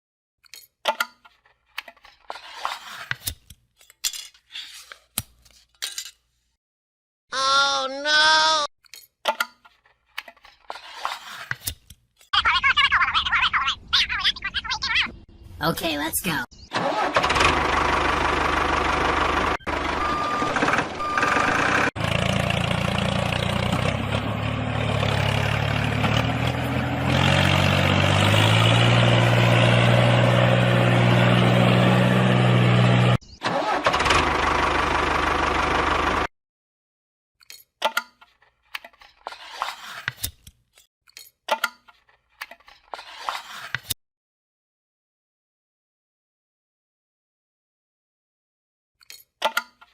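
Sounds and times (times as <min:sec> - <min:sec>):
engine revving: 0:16.7 - 0:36.3.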